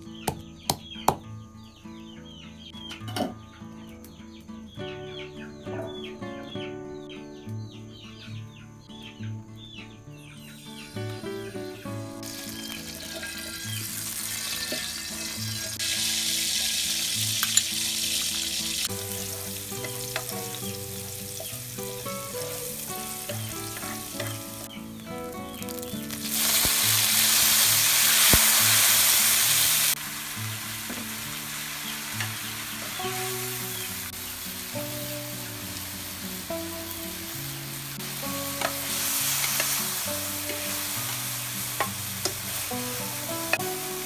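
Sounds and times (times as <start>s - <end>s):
garlic sizzling in oil: 10.8s - 44.0s.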